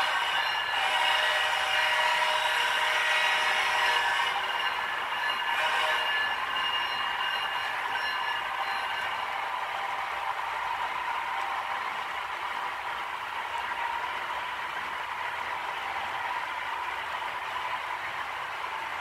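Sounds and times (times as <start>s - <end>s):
model train whirring on track: 0.0s - 19.0s
steady high tones: 4.0s - 10.4s.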